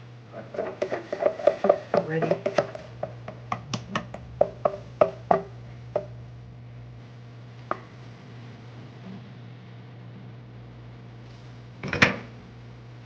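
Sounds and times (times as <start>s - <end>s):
steady low hum: 0.0s - 13.0s
utensil knocking against mixing bowl: 0.6s - 6.2s.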